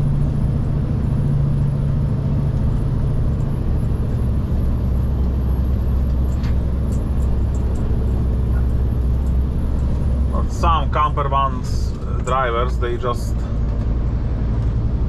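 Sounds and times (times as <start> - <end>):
road noise: 0.0 - 15.0
truck diesel engine droning: 0.0 - 15.0.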